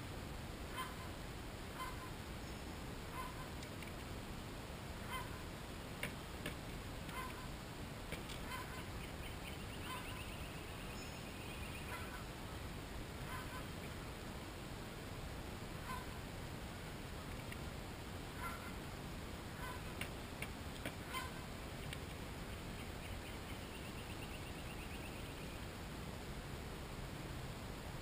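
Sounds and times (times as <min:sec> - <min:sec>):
bird giving short calls: 0:05.0 - 0:05.4, 0:21.0 - 0:21.4.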